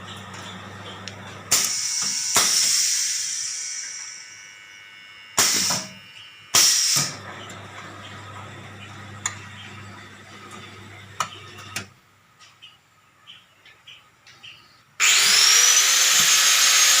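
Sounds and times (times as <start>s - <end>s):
low machine hum: 0.0s - 12.3s
machine hissing bursts: 1.5s - 4.6s, 5.4s - 7.2s
motor whine rising: 15.0s - 17.0s.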